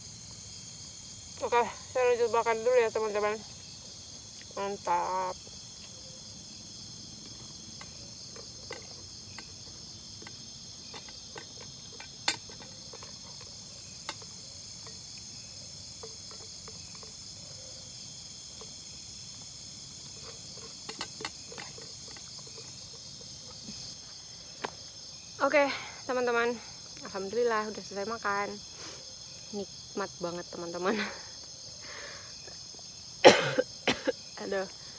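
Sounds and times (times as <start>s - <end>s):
crickets and insects chirping: 0.0s - 34.9s
small clicks and knocks: 7.2s - 15.2s, 20.2s - 22.8s.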